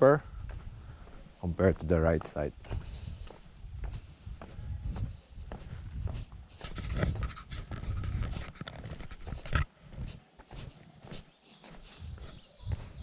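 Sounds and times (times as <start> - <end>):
footsteps on a trail: 0.0 - 13.0
microphone handling rustle: 2.6 - 11.2.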